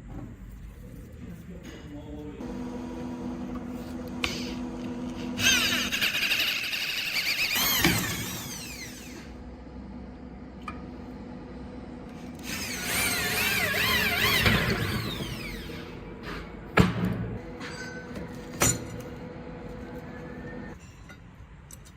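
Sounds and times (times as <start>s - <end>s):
power tool squealing on metal: 5.4s - 9.3s, 12.4s - 16.0s.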